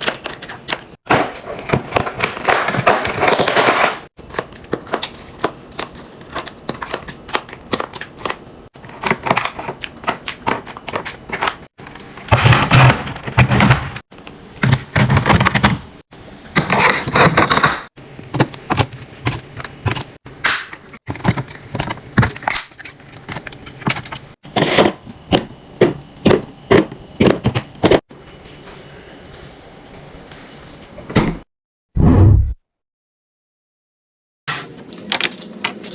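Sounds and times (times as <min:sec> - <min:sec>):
packaging rustling and clatter: 0:01.4 - 0:04.1.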